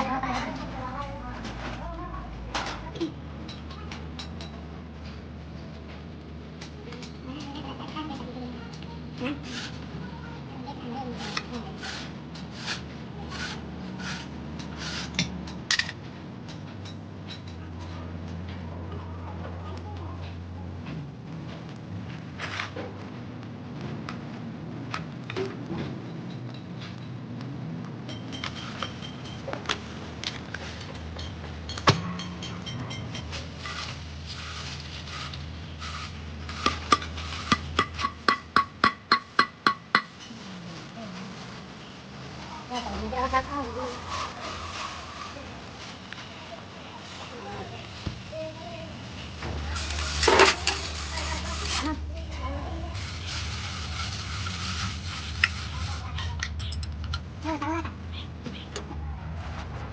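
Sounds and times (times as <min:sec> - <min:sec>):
scraping strokes: 0:09.2 - 0:10.0, 0:11.0 - 0:15.3, 0:32.2 - 0:42.0, 0:42.6 - 0:56.9.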